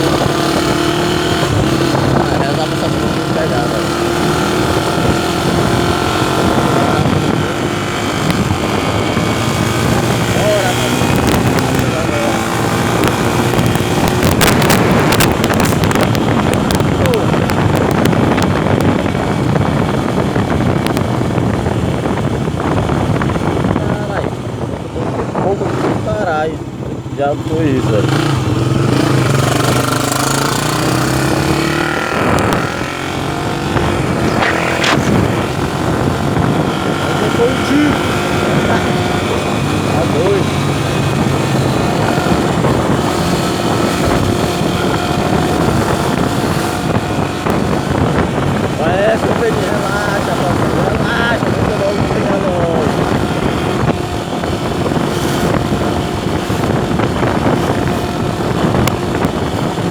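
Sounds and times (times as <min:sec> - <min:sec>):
wind noise on microphone: 0:00.0 - 0:59.9.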